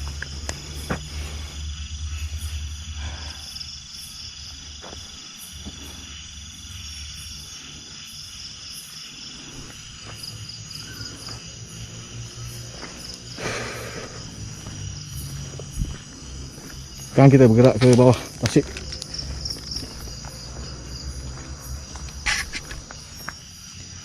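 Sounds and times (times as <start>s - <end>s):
low rumble: 0.0s - 7.6s, 9.4s - 17.6s
insects trilling and chirping: 0.0s - 24.0s.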